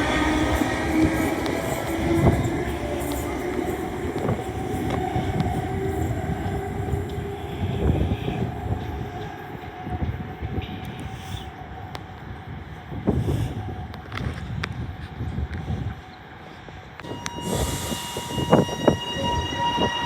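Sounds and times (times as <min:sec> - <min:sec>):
train motor whine: 0:00.0 - 0:09.0, 0:17.0 - 0:20.0
train wheels rumbling on rail: 0:00.0 - 0:20.0.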